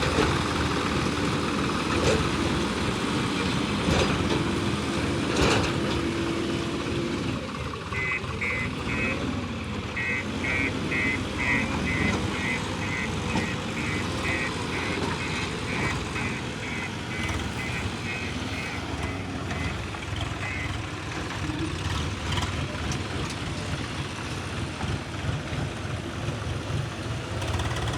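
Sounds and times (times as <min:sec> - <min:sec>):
heavy diesel engine running: 0:00.0 - 0:27.9
reversing alarm beeping: 0:08.0 - 0:09.2, 0:10.0 - 0:19.8.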